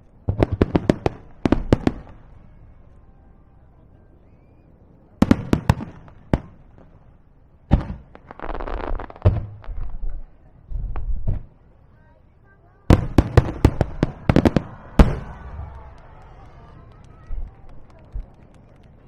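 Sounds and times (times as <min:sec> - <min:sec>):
fireworks bursting with bangs: 0:00.2 - 0:02.8, 0:05.2 - 0:11.7, 0:12.9 - 0:19.0
fireworks crackling hiss: 0:07.9 - 0:11.2.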